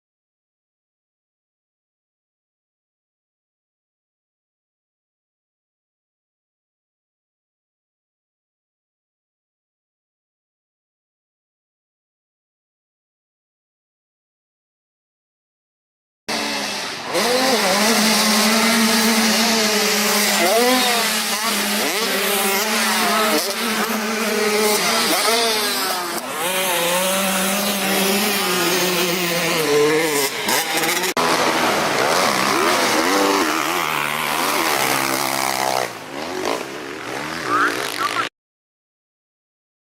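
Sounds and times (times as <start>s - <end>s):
motocross engines revving: 16.3s - 38.3s.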